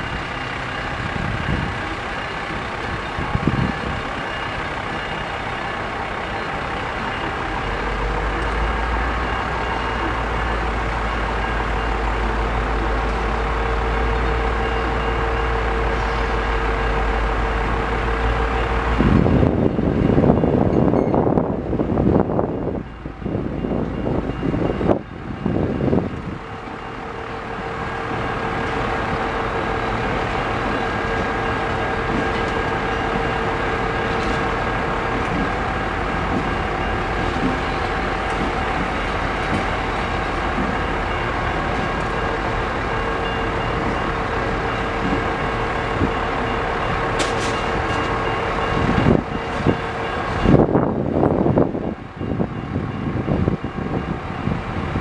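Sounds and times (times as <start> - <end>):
crossing bell ringing: 0.0 - 55.0
train wheels rumbling on rail: 0.0 - 55.0
wind gusts on microphone: 3.1 - 4.2, 48.0 - 55.0.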